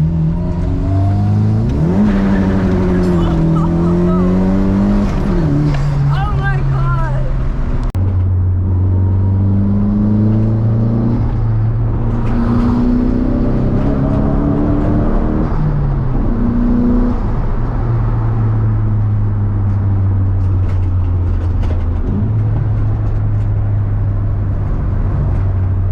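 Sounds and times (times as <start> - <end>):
car engine revving hard: 0.0 - 6.2, 8.7 - 11.4, 12.0 - 17.2.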